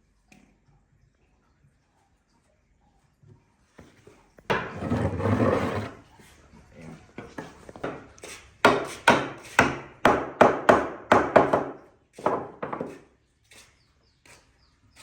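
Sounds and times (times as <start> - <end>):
sharp knocks on wood: 7.8 - 13.0.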